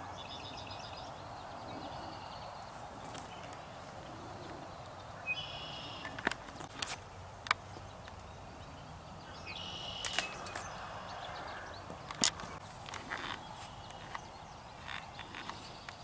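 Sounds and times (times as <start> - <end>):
short high bird calls: 4.2 - 6.2, 9.3 - 11.8.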